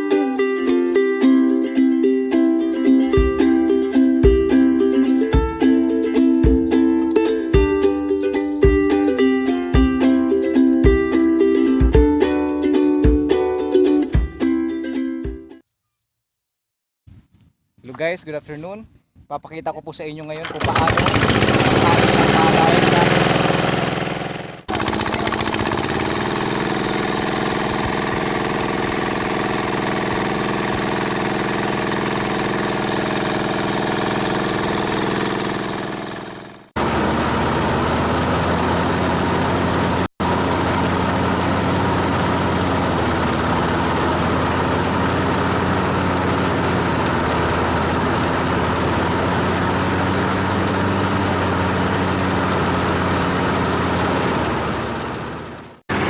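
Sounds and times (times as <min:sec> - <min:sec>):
farm machine engine running: 0:20.3 - 0:56.0.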